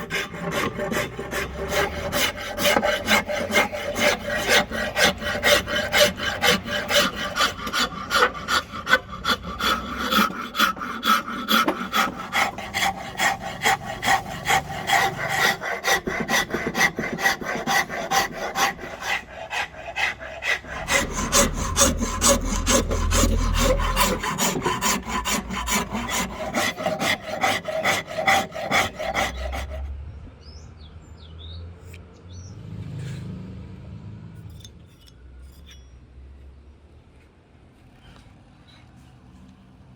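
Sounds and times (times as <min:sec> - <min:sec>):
wood rasp scraping: 0:00.0 - 0:29.9.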